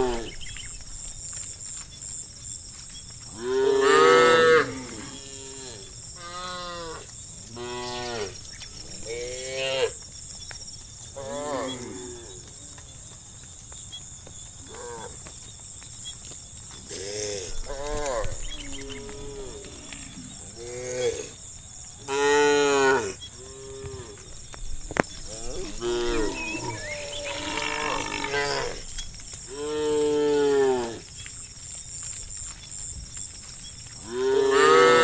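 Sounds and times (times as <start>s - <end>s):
cattle mooing: 25.3s - 28.8s.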